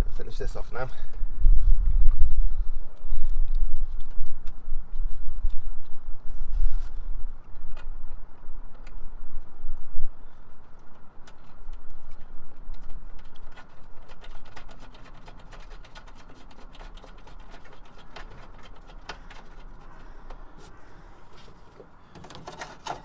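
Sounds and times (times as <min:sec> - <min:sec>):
tool handling and rubbing: 0:12.9 - 0:23.0.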